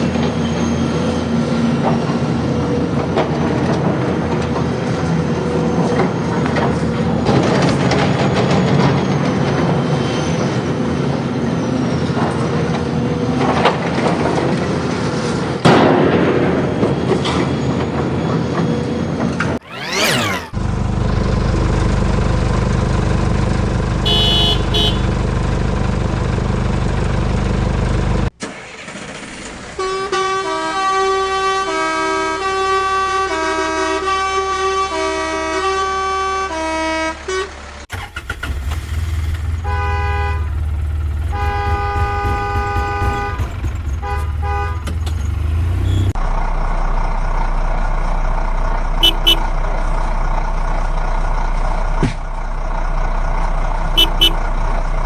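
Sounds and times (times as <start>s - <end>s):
engine rumble: 0.0s - 30.2s, 37.5s - 55.0s
vehicle horns tooting: 24.0s - 25.2s, 39.4s - 45.1s, 49.0s - 49.5s, 54.0s - 54.4s.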